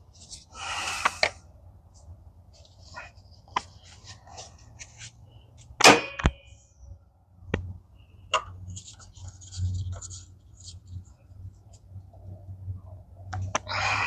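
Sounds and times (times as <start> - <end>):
light scraping and rustling: 0.0 - 5.7, 8.5 - 12.4.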